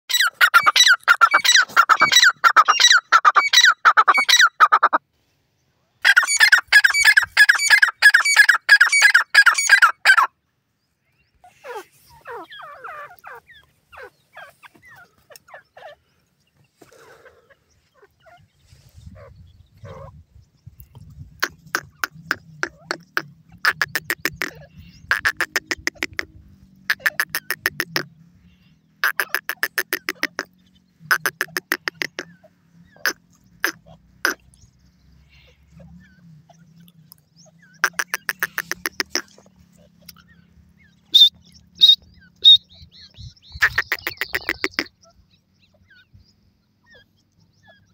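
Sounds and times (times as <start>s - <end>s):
francolin calling: 6.0s - 10.3s, 21.4s - 26.3s, 26.9s - 34.5s, 35.2s - 46.2s
soft bird chirps: 27.0s - 47.9s.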